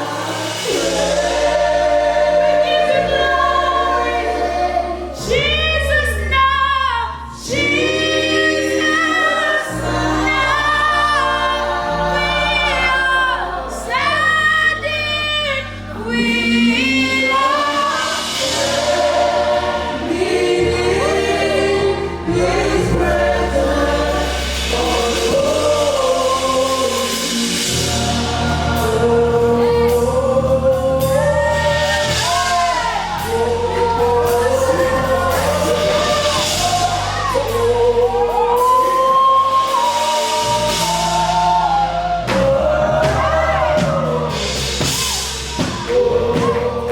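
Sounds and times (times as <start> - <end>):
voices singing together: 0.0 - 46.9.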